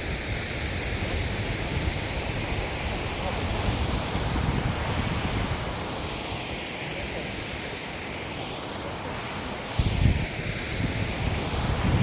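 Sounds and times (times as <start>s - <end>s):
wind buffeting microphone: 0.1s - 6.0s, 9.8s - 12.0s.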